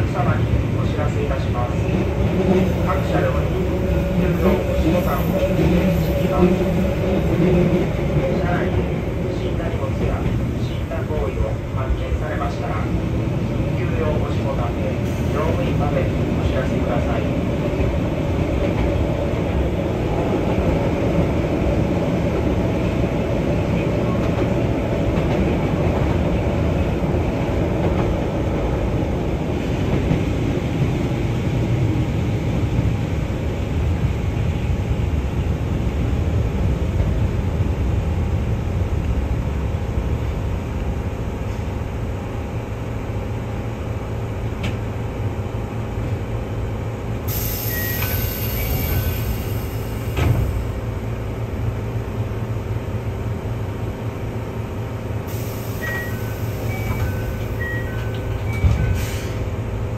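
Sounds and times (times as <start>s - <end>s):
train wheels rumbling on rail: 0.0s - 59.9s
high hiss: 47.3s - 50.2s.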